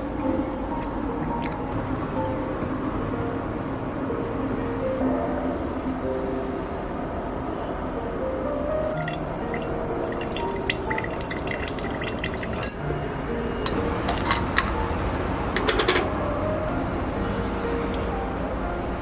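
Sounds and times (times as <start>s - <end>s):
water running: 8.8s - 12.8s.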